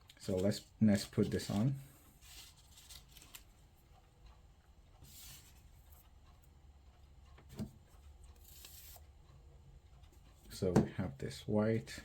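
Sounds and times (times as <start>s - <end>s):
paper rustling: 0.3s - 3.6s.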